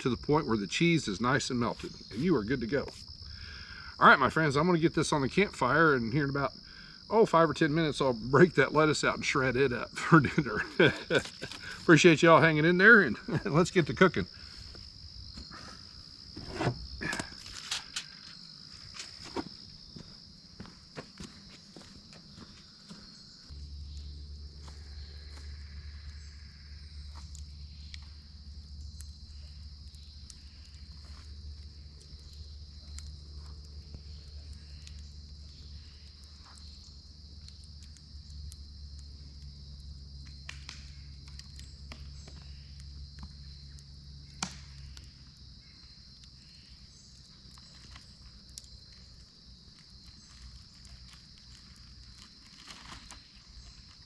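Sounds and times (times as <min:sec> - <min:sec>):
insects droning: 0:00.0 - 0:54.0
light clicks and crackles: 0:17.0 - 0:19.4, 0:27.1 - 0:54.0.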